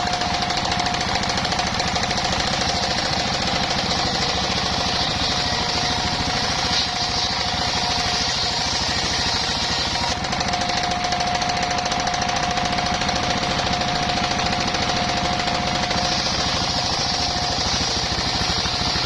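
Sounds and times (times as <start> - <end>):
engine knocking pulse: 0.0 - 19.0
circular saw high tone: 1.2 - 10.2
hiss: 4.9 - 10.2, 16.0 - 19.0.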